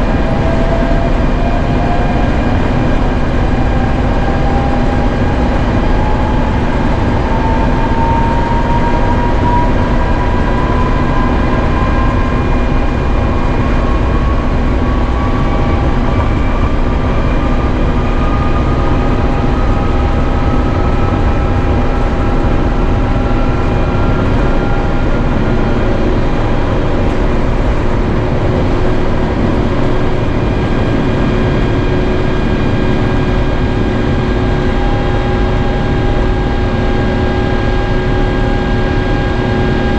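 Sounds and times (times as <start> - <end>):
aircraft cabin engine roar: 0.0 - 39.9
engine whine rising in pitch: 0.0 - 39.9.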